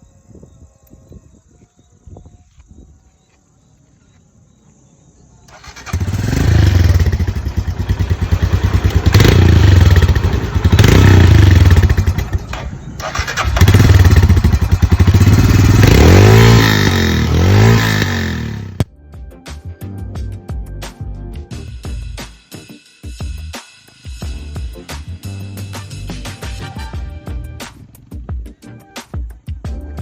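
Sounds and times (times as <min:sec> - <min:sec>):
motorcycle engine revving: 0:05.5 - 0:18.9.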